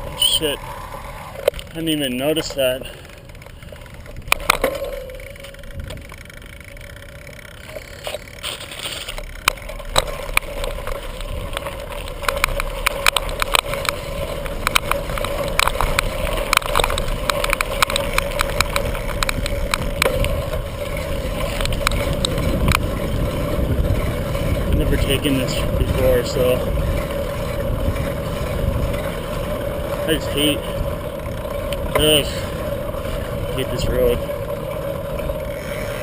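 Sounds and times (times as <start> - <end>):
bicycle rolling rumble: 0.0 - 36.0
sharp clicks and rattles: 0.0 - 36.0
steady whine: 0.0 - 36.0.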